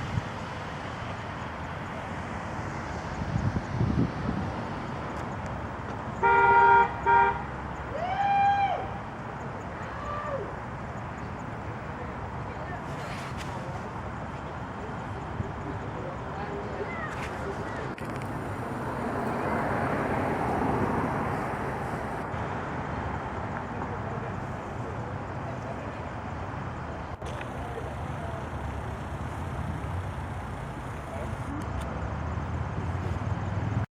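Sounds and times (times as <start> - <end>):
outdoor background hum: 0.0 - 33.8
car horn honking: 6.2 - 7.6.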